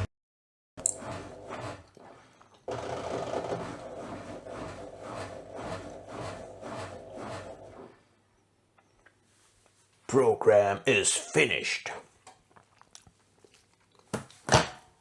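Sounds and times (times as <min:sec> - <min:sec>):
washing machine drum tumbling: 0:00.8 - 0:07.9.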